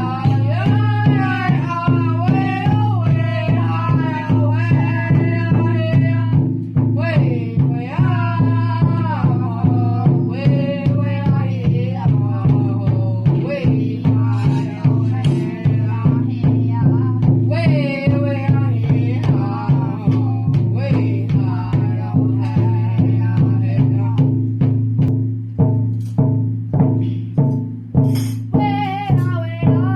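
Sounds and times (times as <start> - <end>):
person singing: 0.0 - 6.4, 7.0 - 24.4, 28.5 - 29.9
steady drumbeat: 0.0 - 29.9.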